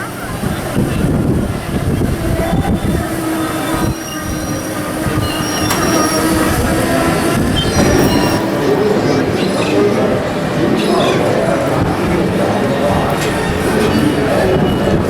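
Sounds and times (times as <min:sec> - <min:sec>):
tram rumbling on wooden boardwalk: 0:00.0 - 0:15.0
high squealing tones: 0:02.3 - 0:11.5.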